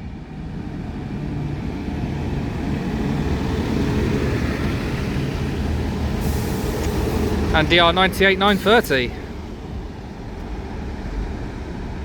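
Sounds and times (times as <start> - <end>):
diesel engine rumble: 0.0 - 12.0
high hiss: 6.2 - 9.1.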